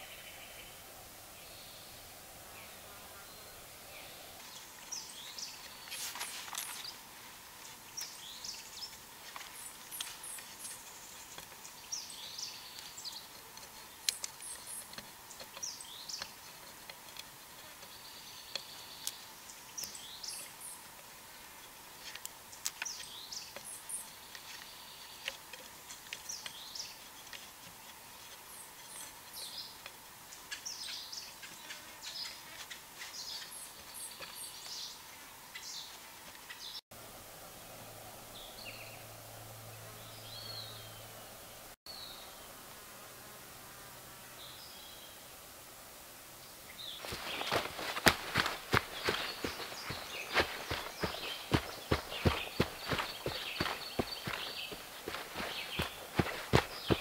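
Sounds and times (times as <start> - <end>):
songbird chirping: 0.0 - 36.8, 37.8 - 42.6, 44.2 - 45.4, 46.3 - 57.0
faint insect hum: 0.0 - 57.0.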